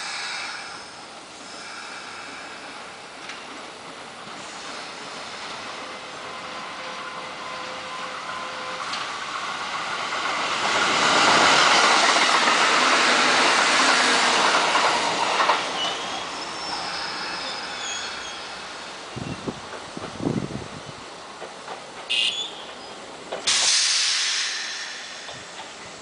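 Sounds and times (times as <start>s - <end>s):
train passing on rails: 0.0s - 26.0s
high-pitched squeals: 15.4s - 19.2s.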